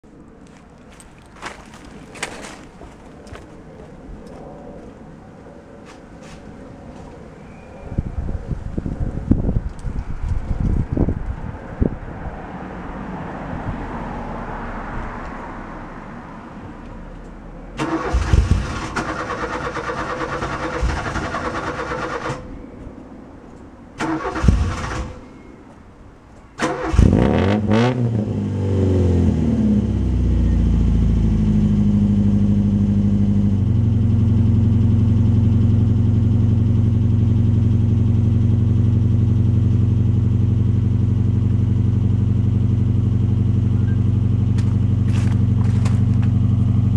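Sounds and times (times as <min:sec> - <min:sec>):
car starter cranking: 0:17.8 - 0:22.5, 0:24.0 - 0:25.2
car engine revving and idling: 0:26.6 - 0:46.9.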